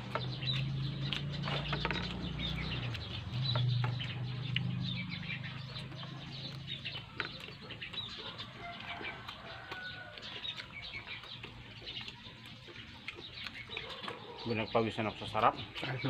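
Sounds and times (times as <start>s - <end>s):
chickens clucking: 0.0s - 16.0s
small birds chirping: 0.0s - 16.0s.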